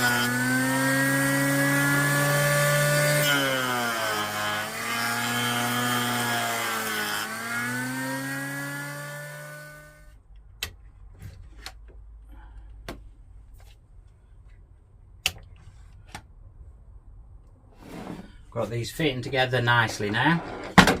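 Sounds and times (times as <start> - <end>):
electric planer whining: 0.0 - 10.1.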